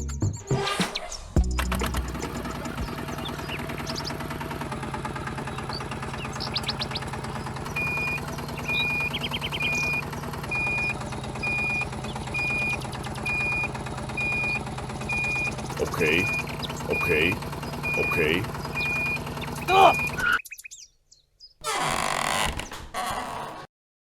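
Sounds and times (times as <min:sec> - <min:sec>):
small motor humming: 0:01.7 - 0:20.4
reversing beeper: 0:07.7 - 0:20.4.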